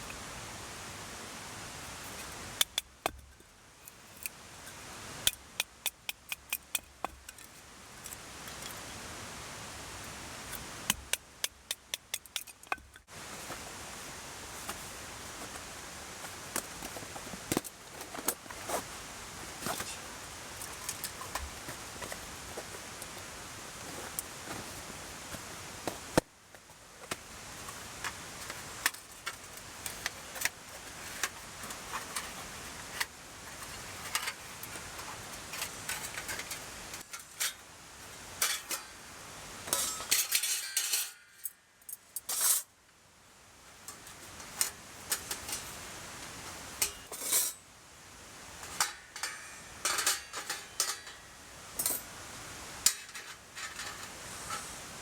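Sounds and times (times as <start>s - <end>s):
metal parts clinking: 39.7s - 42.7s, 46.8s - 47.6s, 48.7s - 52.1s, 52.8s - 54.2s.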